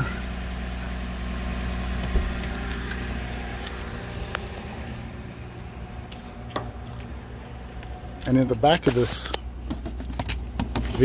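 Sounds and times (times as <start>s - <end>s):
car engine idling: 0.0s - 11.0s
trunk release thump: 2.0s - 3.7s, 6.5s - 6.9s
trunk lid popping click: 2.0s - 4.5s, 6.4s - 7.1s.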